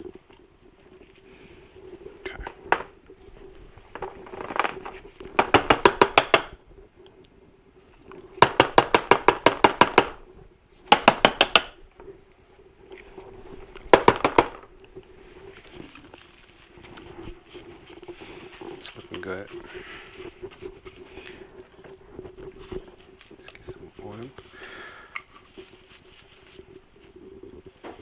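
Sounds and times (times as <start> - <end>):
faint scraping: 14.6 - 28.0.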